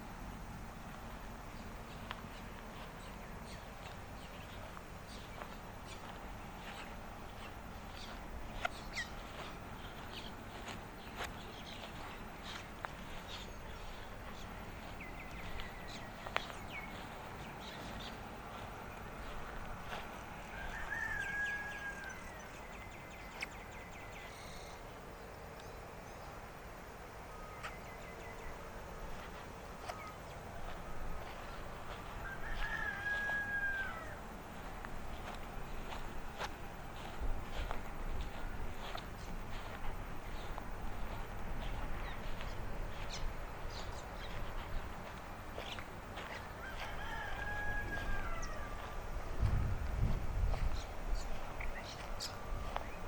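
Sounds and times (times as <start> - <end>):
small birds chirping: 0.4 - 26.5, 27.2 - 53.0
rooster crowing: 18.5 - 23.3, 30.6 - 39.0, 45.1 - 49.8.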